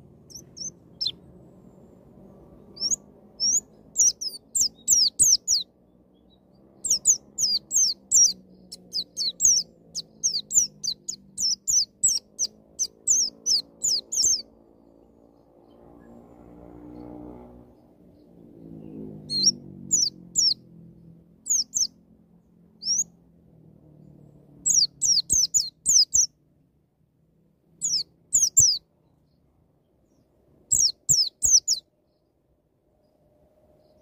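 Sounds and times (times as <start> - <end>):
bird sharp chirps: 0.2 - 1.3, 2.5 - 14.5, 18.2 - 20.6, 21.5 - 22.0, 22.8 - 23.2, 24.6 - 26.3, 27.8 - 28.8, 30.1 - 32.2.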